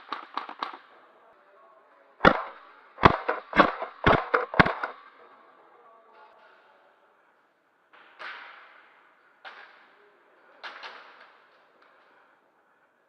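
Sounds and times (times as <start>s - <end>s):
airsoft gun shots: 2.2s - 5.0s.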